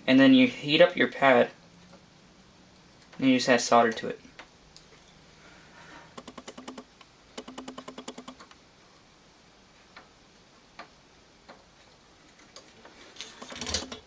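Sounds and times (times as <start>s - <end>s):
rapid even clicking: 6.1s - 8.6s.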